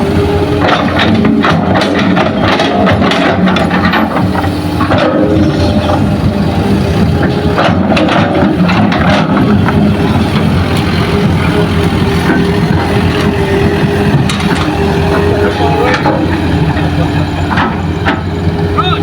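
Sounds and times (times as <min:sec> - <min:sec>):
diesel machinery running: 0:00.0 - 0:19.0
clanking and rattling: 0:00.5 - 0:18.8.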